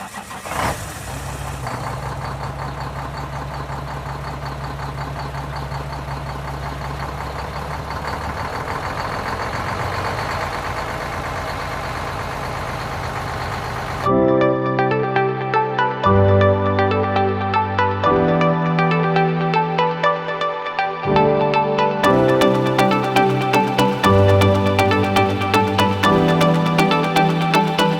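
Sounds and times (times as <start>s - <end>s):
diesel truck engine idling: 0.0s - 14.1s.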